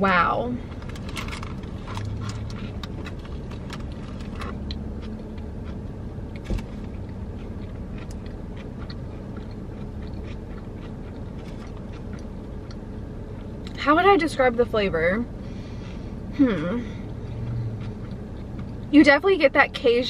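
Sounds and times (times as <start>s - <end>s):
steady low hum: 0.0s - 20.0s
chewing sandwich mouth sounds: 1.5s - 13.8s, 17.2s - 18.9s.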